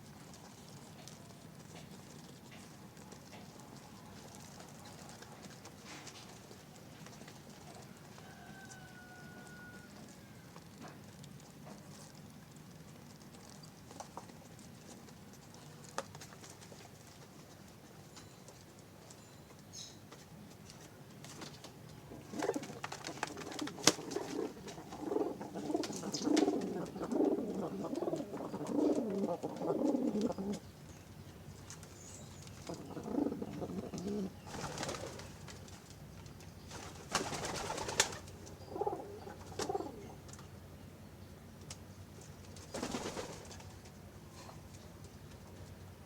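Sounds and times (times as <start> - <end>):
pigeons cooing: 22.0 - 30.8, 32.0 - 35.6, 37.1 - 40.4.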